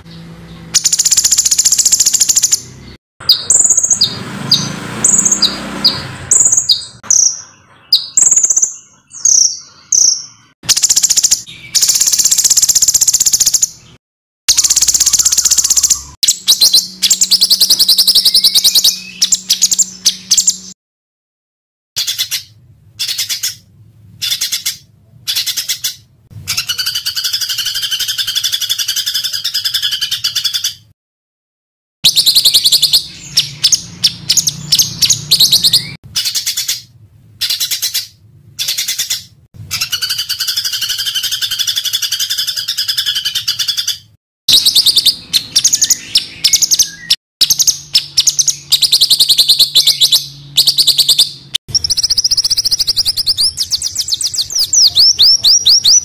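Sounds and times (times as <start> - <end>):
songbirds chirping: 0.0 - 20.8, 32.1 - 56.0
buzzy rattling bird trills: 0.8 - 2.6, 6.3 - 13.8, 14.5 - 20.6, 32.1 - 56.0.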